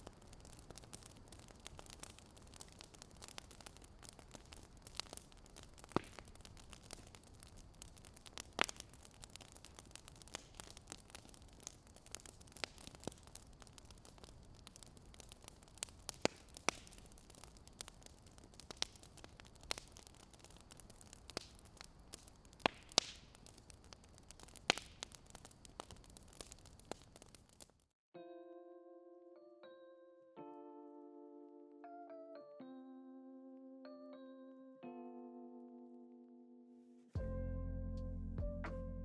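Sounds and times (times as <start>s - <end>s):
faint steady hiss: 0.0s - 27.8s
wood fire crackling: 0.0s - 27.9s.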